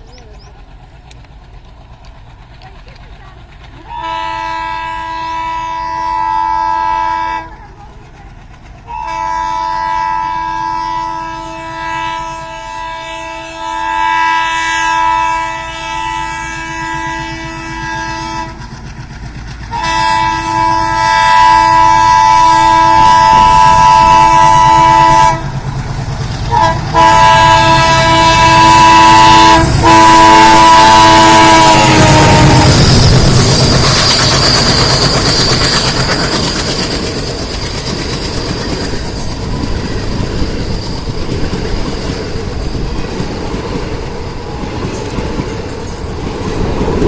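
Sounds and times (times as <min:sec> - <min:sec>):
train rumble: 0:00.0 - 0:47.0
train wheel clatter: 0:00.0 - 0:47.0
locomotive horn blasts: 0:03.9 - 0:07.6, 0:08.9 - 0:18.6, 0:19.7 - 0:25.6, 0:26.5 - 0:33.1.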